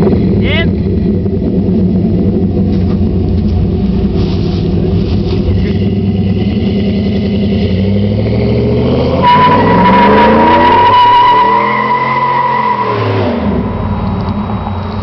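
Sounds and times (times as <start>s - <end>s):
car engine running and revving: 0.0s - 15.0s
high steady squeal: 9.1s - 15.0s.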